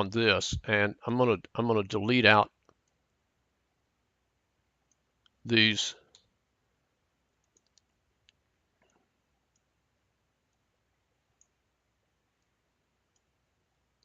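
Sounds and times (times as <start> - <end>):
computer mouse clicks: 7.4 - 9.7, 11.4 - 11.6, 13.1 - 13.3.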